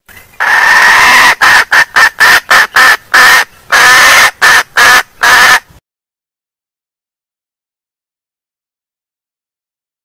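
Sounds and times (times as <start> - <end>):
hen cackling calls: 0.4 - 5.7.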